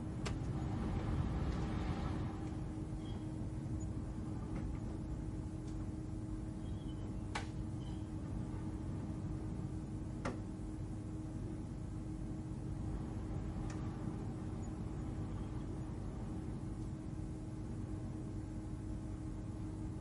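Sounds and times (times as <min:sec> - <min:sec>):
low ambient cabin hum: 0:00.0 - 0:20.0.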